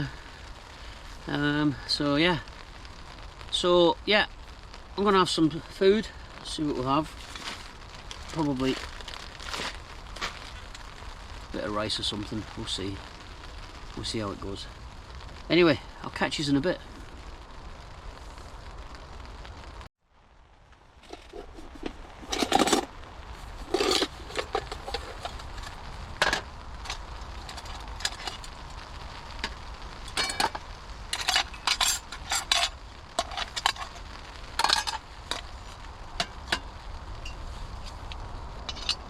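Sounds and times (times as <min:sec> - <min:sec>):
steady low rumble: 0:00.0 - 0:39.0
cookware clinking and scraping: 0:21.1 - 0:22.9, 0:23.7 - 0:25.3, 0:34.6 - 0:35.0.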